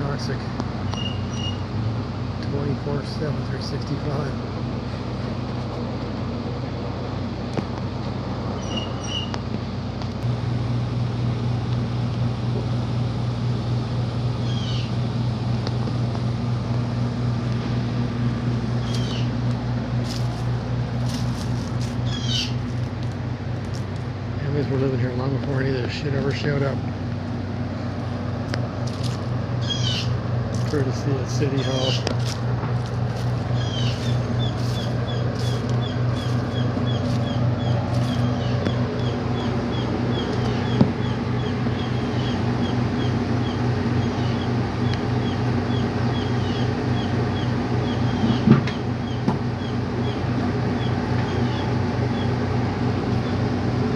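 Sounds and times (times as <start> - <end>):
low machine drone: 0.0 - 53.9
high falling chirps: 21.9 - 22.8, 33.0 - 47.1.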